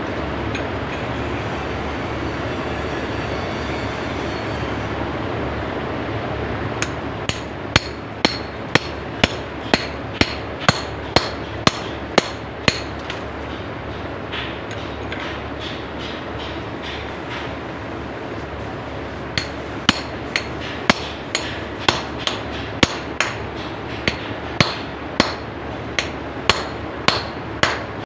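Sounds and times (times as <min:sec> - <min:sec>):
steady background noise: 0:00.0 - 0:28.0
hammer striking a chisel: 0:06.8 - 0:13.6, 0:14.3 - 0:17.5, 0:19.4 - 0:28.0.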